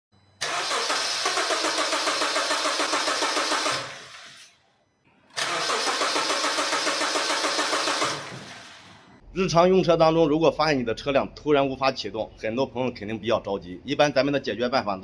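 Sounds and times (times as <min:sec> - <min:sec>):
starter motor cranking engine: 0:00.4 - 0:04.5, 0:05.3 - 0:09.2.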